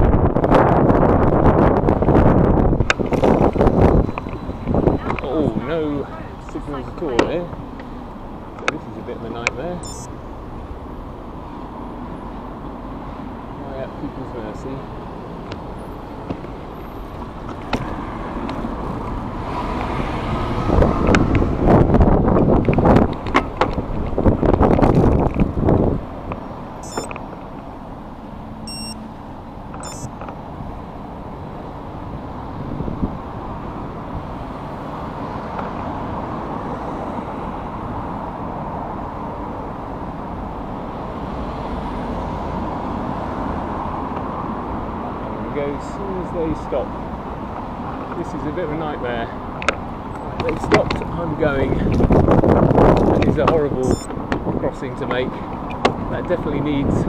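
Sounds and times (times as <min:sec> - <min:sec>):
wind buffeting microphone: 0:00.0 - 0:07.4, 0:16.2 - 0:26.8, 0:32.0 - 0:35.0, 0:49.4 - 0:57.0
road traffic passing: 0:00.0 - 0:57.0.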